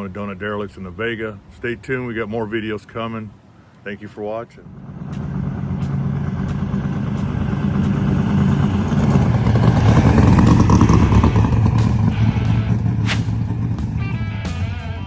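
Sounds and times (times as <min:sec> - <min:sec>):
vehicle engine running loudly: 0:04.6 - 0:15.0.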